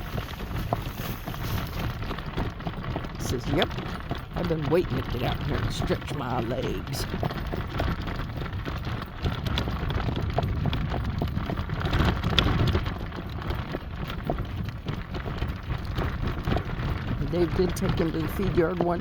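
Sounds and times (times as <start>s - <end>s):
horse hooves clip-clopping: 0.0s - 19.0s.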